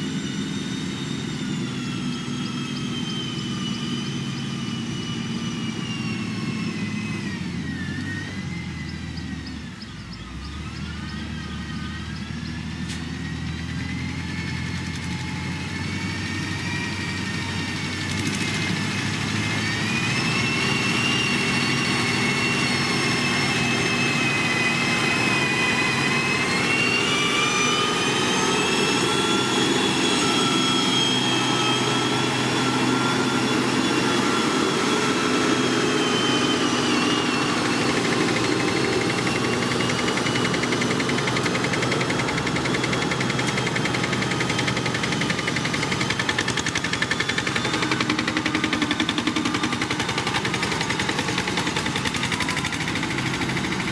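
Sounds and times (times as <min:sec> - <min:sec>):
diesel engine running under load: 0:00.0 - 0:53.9
high whine: 0:00.0 - 0:53.9
fast even pulsing: 0:01.4 - 0:53.9.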